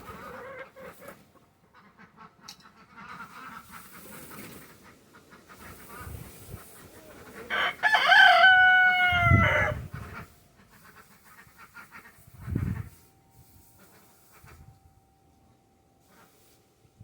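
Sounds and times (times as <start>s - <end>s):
rooster crowing: 7.5s - 9.9s.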